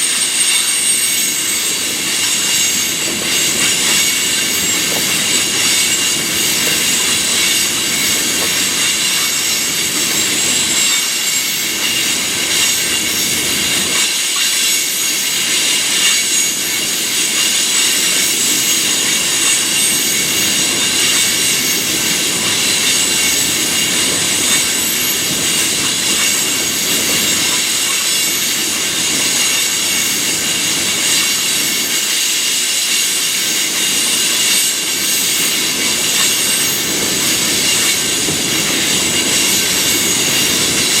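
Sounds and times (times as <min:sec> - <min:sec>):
high-pitched wheel squeal: 0:00.0 - 0:13.4
freight train cars rolling: 0:00.0 - 0:41.0.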